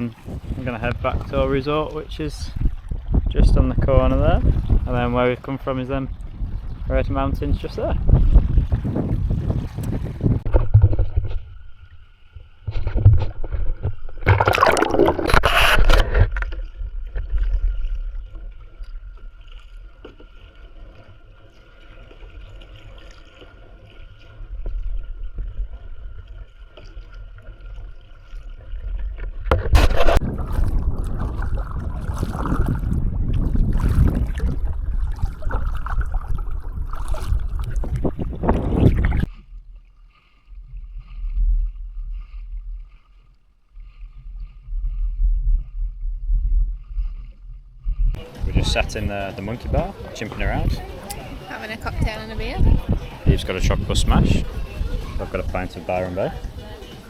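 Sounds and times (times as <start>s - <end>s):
rushing wind: 0.0s - 5.2s, 6.1s - 18.3s, 29.4s - 39.4s, 43.8s - 55.7s
water rushing: 0.0s - 6.1s, 9.2s - 39.4s, 48.2s - 57.0s
boat engine rumbling: 0.0s - 57.0s.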